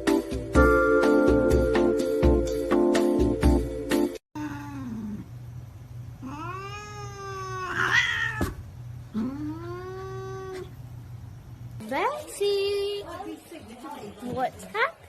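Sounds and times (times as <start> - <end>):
cat yowling: 6.2 - 10.8.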